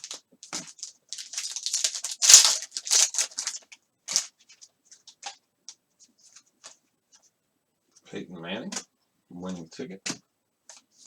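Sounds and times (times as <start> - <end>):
wrapper tearing and crinkling: 0.0 - 4.3.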